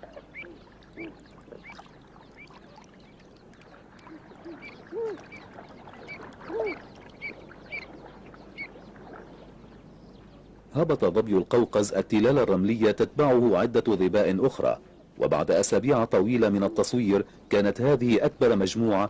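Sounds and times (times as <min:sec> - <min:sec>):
louder lower bird calls: 0:00.0 - 0:10.6.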